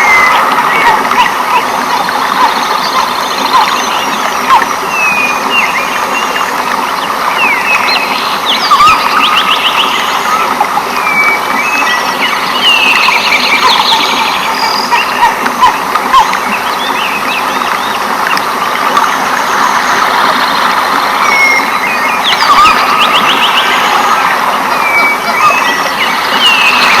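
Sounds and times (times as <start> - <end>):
animal calls and trills: 0.0 - 27.0.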